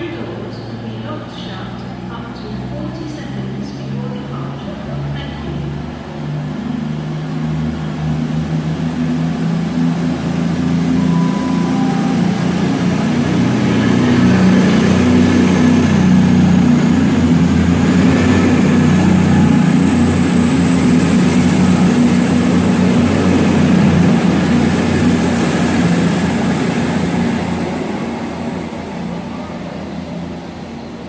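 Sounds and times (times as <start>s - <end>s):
diesel train engine running: 0.2s - 31.0s
high engine whine: 5.5s - 31.0s
falling two-note tone: 10.4s - 15.2s.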